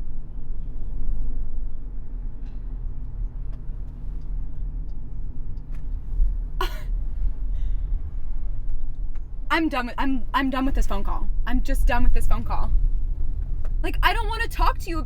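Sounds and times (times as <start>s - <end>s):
car cabin rumble: 0.0s - 15.0s.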